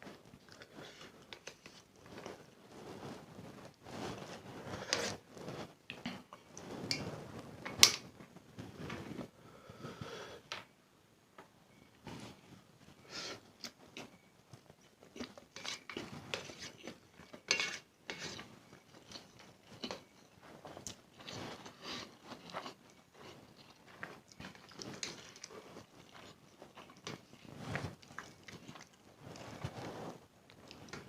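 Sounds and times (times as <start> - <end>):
person chewing noodles: 14.8 - 17.3, 18.7 - 29.7.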